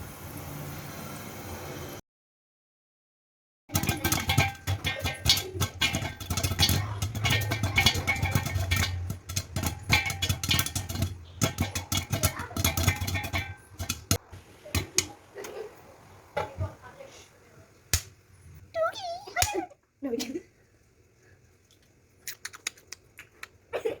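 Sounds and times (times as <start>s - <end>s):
popcorn popping in a pan: 3.7s - 16.9s, 17.8s - 18.2s
low steady hum: 3.7s - 22.2s.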